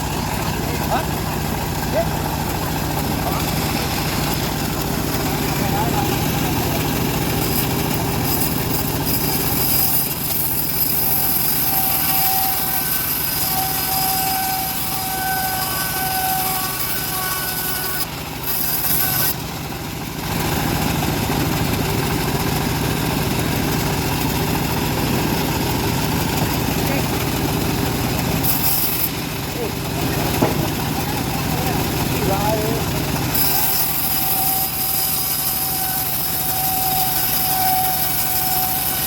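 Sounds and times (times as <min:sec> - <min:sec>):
thin whine: 0:00.0 - 0:19.4, 0:33.3 - 0:39.0
bandsaw engine running: 0:00.0 - 0:39.0.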